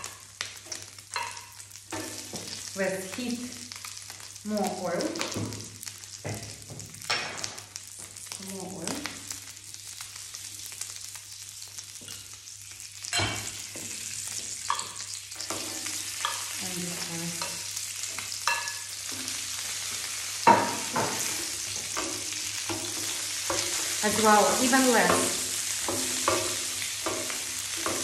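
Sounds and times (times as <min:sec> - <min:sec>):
food sizzling in hot oil: 0:00.0 - 0:28.0
metal tongs knocking on pan: 0:01.1 - 0:02.4, 0:18.4 - 0:19.2, 0:20.4 - 0:23.8, 0:24.6 - 0:28.0.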